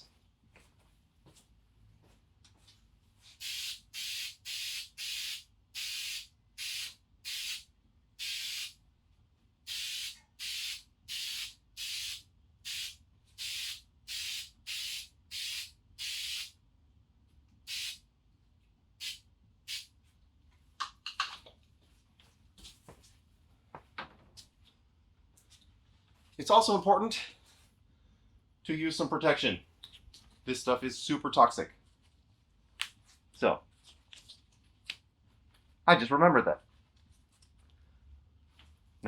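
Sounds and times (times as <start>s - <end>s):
aerosol spray hissing: 3.4s - 7.6s, 8.2s - 8.8s, 9.7s - 16.5s, 17.7s - 18.0s, 19.0s - 19.9s.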